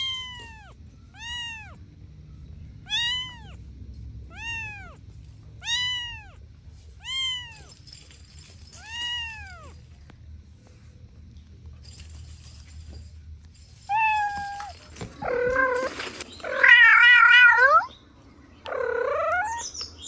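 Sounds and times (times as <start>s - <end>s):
cat meowing: 0.0s - 1.8s, 2.8s - 3.6s, 4.3s - 5.0s, 5.6s - 6.4s, 7.0s - 7.8s, 8.8s - 9.8s, 13.9s - 17.9s.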